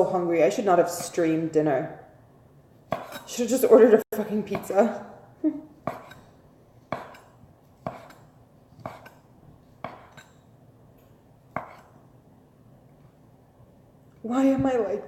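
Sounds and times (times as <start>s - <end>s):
knife chopping on cutting board: 2.9s - 3.3s, 5.8s - 9.2s, 9.8s - 10.4s, 11.5s - 12.0s.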